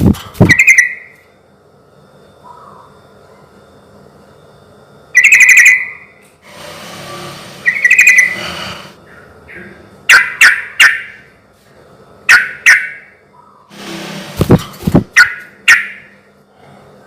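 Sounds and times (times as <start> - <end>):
bird singing: 0.4 - 1.2, 2.4 - 3.5, 5.1 - 6.2, 7.6 - 8.4, 12.3 - 13.7.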